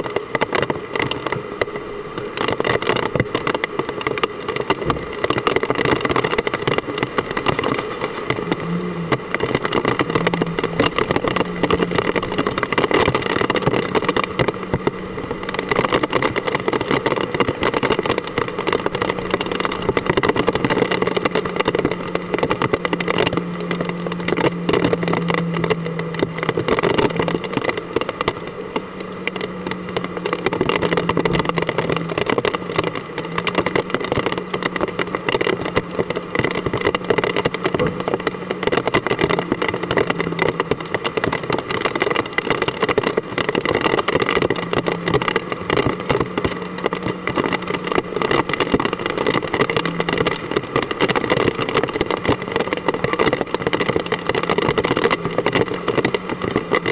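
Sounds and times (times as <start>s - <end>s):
low hum: 6.8s - 41.0s.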